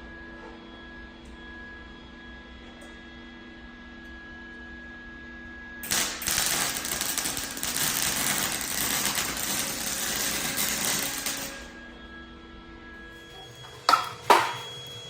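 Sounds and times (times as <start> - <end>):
welding arc crackling: 5.9 - 11.6.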